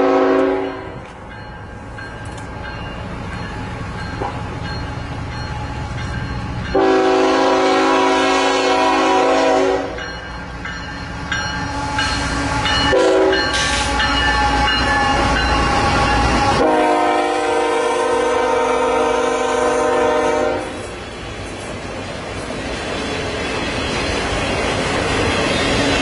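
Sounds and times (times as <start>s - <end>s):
locomotive air horn blasts: 0.0s - 1.0s, 6.8s - 10.0s, 11.8s - 14.6s, 15.7s - 20.9s
low rumble of train: 0.0s - 26.0s.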